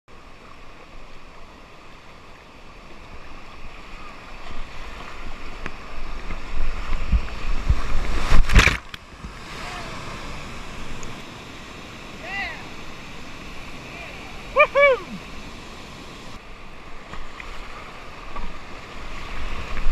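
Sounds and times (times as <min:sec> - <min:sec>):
whitewater rushing: 0:03.2 - 0:16.9.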